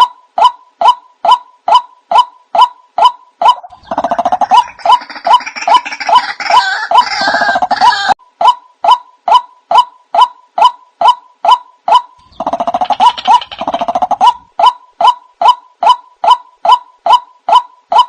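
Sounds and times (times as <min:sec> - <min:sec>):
dense bird calling: 0:00.9 - 0:08.2, 0:11.9 - 0:18.0.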